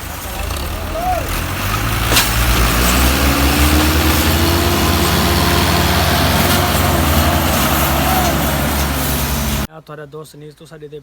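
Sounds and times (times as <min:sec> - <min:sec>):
heavy vehicle engine humming: 0:00.0 - 0:09.7.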